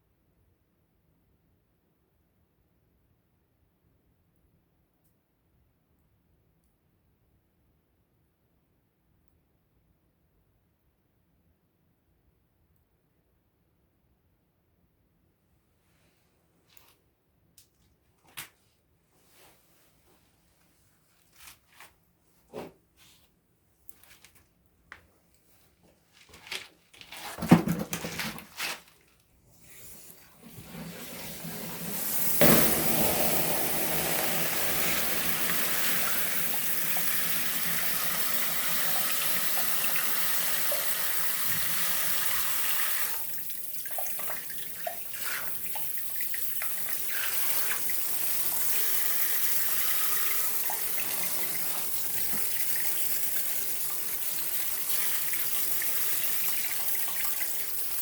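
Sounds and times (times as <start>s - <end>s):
rustles and knocks: 25.8s - 29.2s
water hissing on burning wood: 30.2s - 58.0s.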